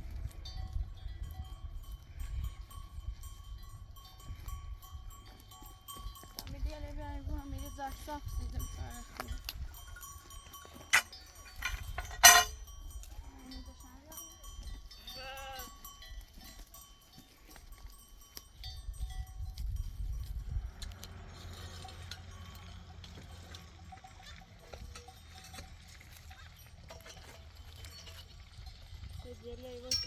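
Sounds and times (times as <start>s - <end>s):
livestock bells clinking: 0.0s - 30.0s
sheep or goat bleating: 15.0s - 15.9s.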